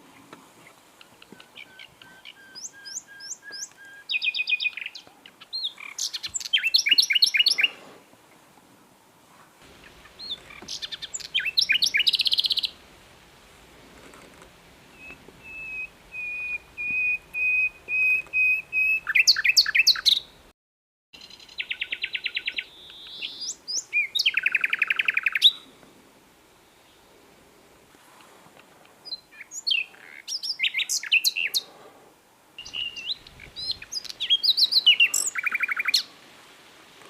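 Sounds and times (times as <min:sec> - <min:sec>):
nightingale singing: 0:01.0 - 0:07.8, 0:09.7 - 0:12.8, 0:14.9 - 0:20.4, 0:21.2 - 0:25.7, 0:29.0 - 0:31.7, 0:32.6 - 0:36.1.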